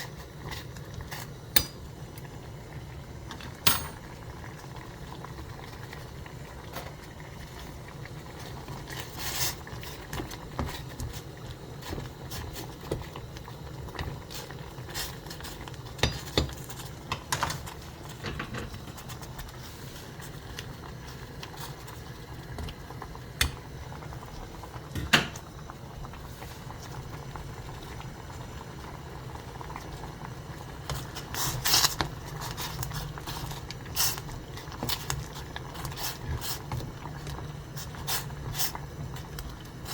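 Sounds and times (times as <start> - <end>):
water boiling in a pot: 0.0 - 39.9
cooking utensils and pans clattering: 3.4 - 4.0.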